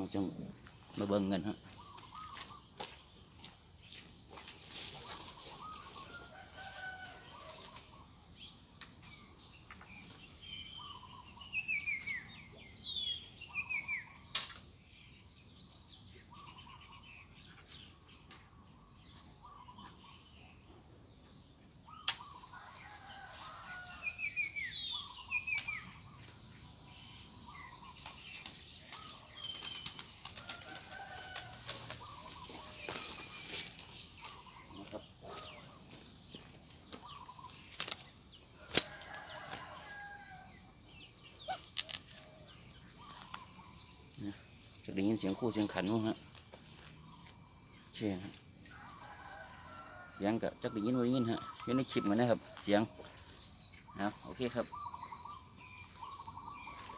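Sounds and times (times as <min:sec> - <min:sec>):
birds chirping: 0:00.0 - 0:56.9
doves cooing: 0:36.9 - 0:38.0, 0:41.4 - 0:44.5.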